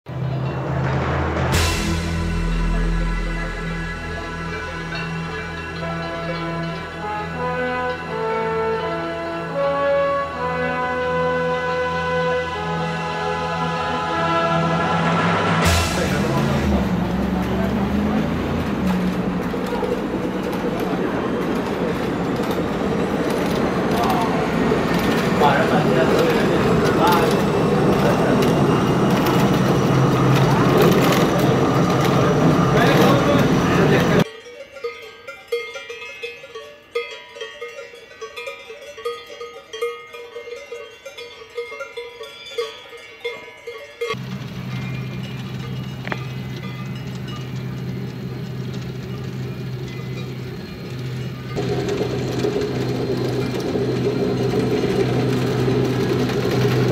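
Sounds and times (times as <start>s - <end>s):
train running gear rattle: 0.1s - 9.4s, 15.6s - 34.3s, 43.8s - 56.9s
cowbells clanking: 2.4s - 9.2s, 17.2s - 56.9s
low motor hum: 13.1s - 34.2s, 44.2s - 56.9s.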